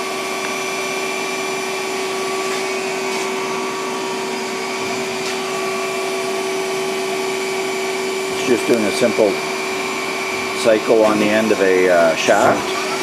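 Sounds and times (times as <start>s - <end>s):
lathe whirring hum: 0.0s - 13.0s.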